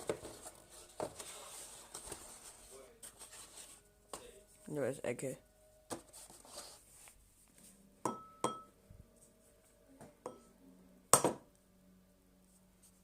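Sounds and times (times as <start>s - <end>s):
egg clinking on ceramic bowl: 8.1s - 8.7s.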